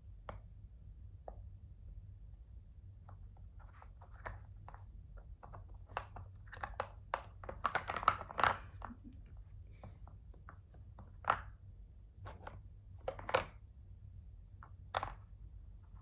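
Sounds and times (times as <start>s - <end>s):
cat pawing at puzzle toy: 3.0s - 9.0s, 12.2s - 13.6s, 14.6s - 16.0s.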